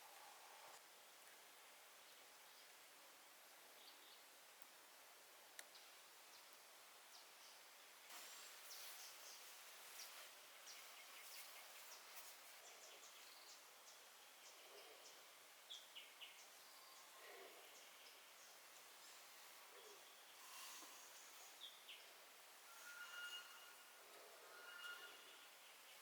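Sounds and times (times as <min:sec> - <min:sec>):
faint rain hiss: 0:00.0 - 0:26.0.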